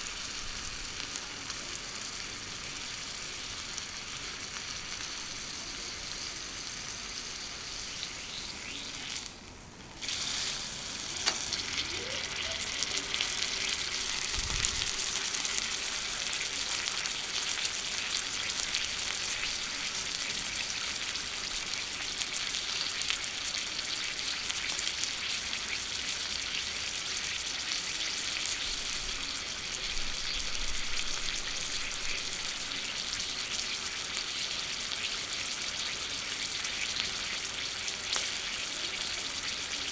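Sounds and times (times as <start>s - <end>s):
steak sizzling on griddle: 0.0s - 39.9s.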